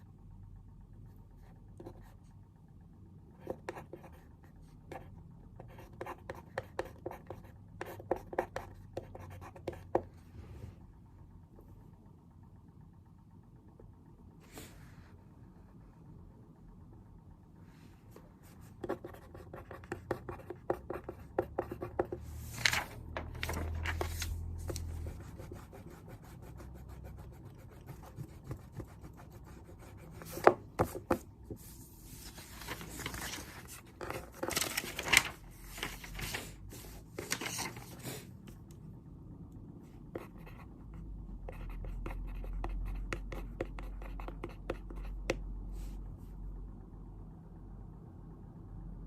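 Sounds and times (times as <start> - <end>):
paper rustling: 22.4 - 25.0, 31.6 - 38.3.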